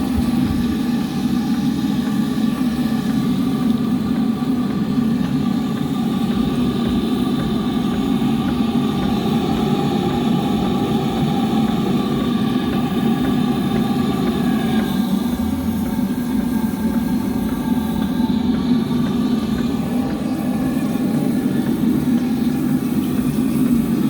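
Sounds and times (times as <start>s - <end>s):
steam engine running: 0.0s - 24.0s.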